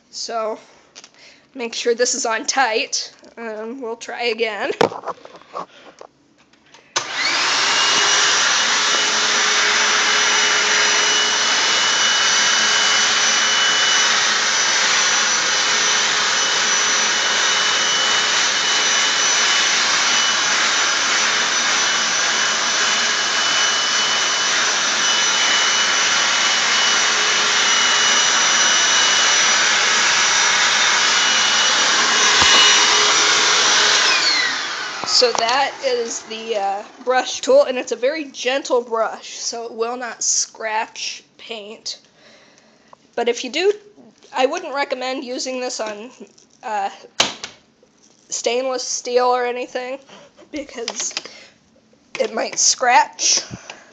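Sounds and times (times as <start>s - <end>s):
vacuum cleaner motor whining: 7.0s - 38.7s.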